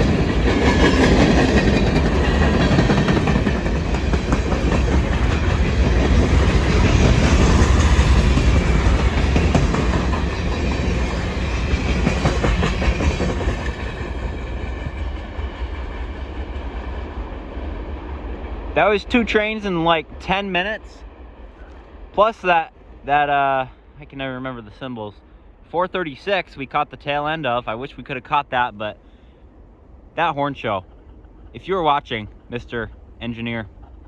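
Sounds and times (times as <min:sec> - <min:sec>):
train wheel clatter: 0:00.0 - 0:22.6, 0:30.7 - 0:34.0
freight train rumbling: 0:00.0 - 0:34.0.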